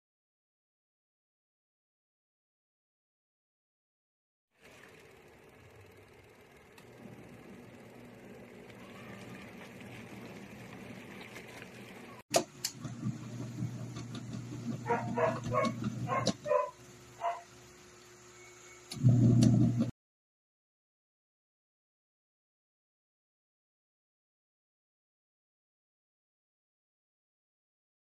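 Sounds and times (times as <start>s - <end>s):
washing machine motor hum: 4.5s - 19.9s
small dog yapping: 14.8s - 17.5s.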